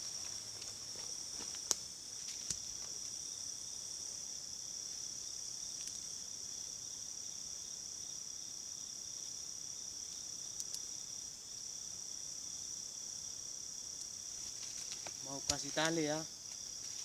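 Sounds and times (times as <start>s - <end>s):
insects trilling: 0.0s - 17.0s
faint clicks: 5.8s - 6.1s, 10.6s - 10.9s.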